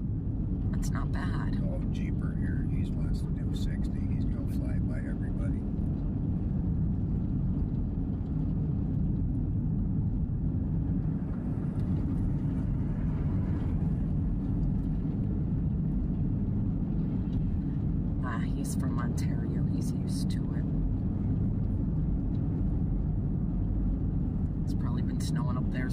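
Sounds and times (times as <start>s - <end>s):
vehicle rumble on snowy road: 0.0s - 25.9s.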